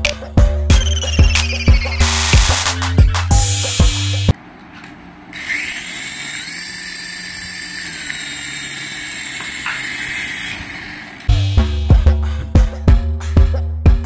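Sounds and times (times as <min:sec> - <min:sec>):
small electric motor whining: 0:05.3 - 0:11.3.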